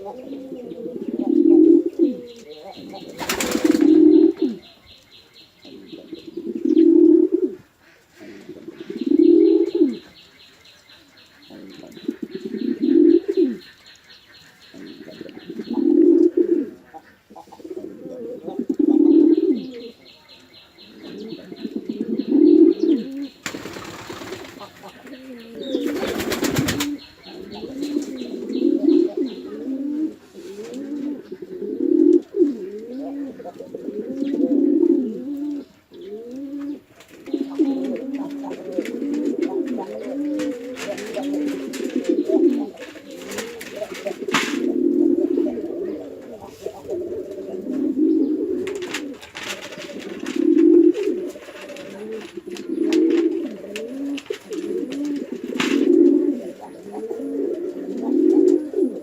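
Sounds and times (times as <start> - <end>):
pigeon cooing: 0.0 - 13.8, 14.4 - 59.0
wing flapping: 3.0 - 4.1, 23.4 - 24.9, 25.7 - 27.1, 39.9 - 44.7, 48.6 - 56.1.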